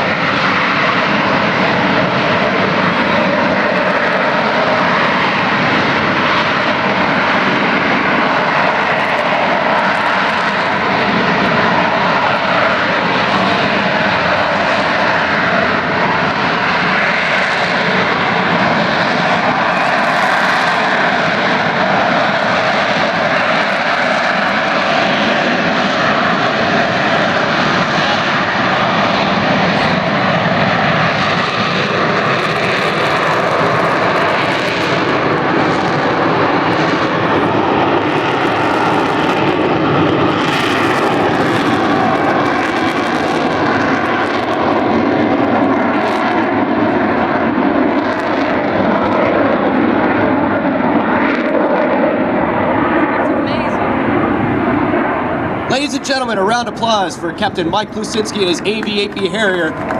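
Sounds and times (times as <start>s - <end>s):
jet engine roaring: 0.0s - 59.9s
faint engine whine: 51.9s - 59.9s.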